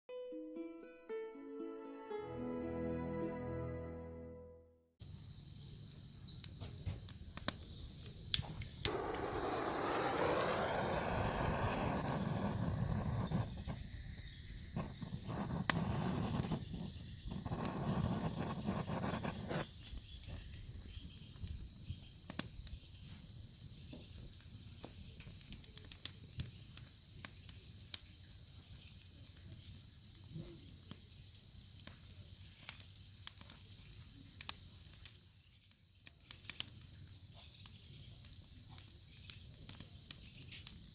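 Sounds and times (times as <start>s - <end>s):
low rushing noise: 8.9s - 13.7s.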